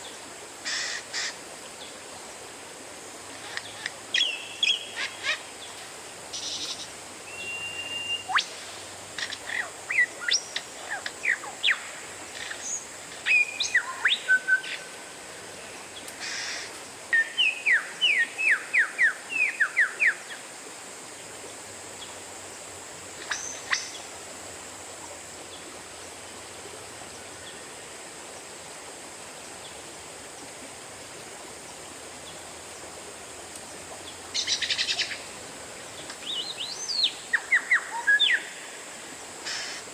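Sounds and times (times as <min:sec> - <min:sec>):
bird singing whistles: 0:07.3 - 0:08.5.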